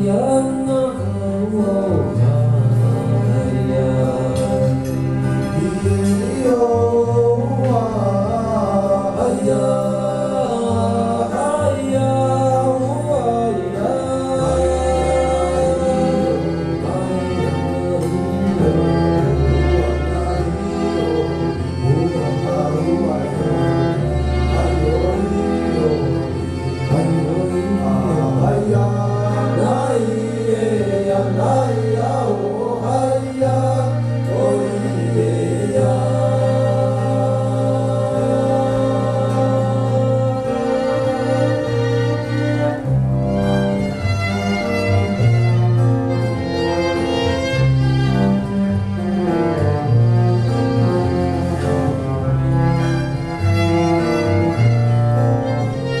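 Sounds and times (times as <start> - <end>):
person singing: 0.0 - 42.8
live band playing: 0.0 - 56.0
sustained bass notes: 0.0 - 56.0.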